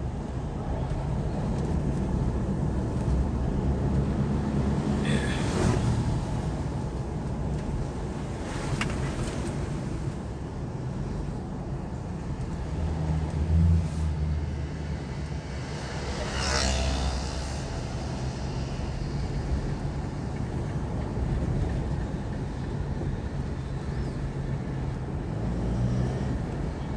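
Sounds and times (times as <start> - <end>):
diesel engine rumbling: 0.0 - 26.9.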